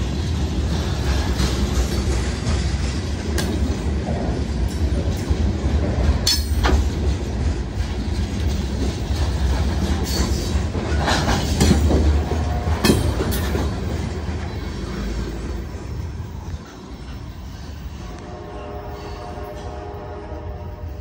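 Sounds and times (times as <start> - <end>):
clickety-clack of wheels: 0.0 - 18.2
train wheels rumbling on rail: 0.0 - 21.0
sharp metallic clanks: 6.1 - 7.2.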